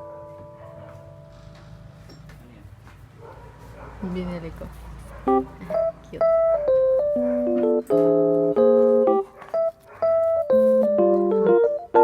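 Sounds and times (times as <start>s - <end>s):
electric piano playing chords: 0.0s - 2.1s, 5.2s - 12.0s.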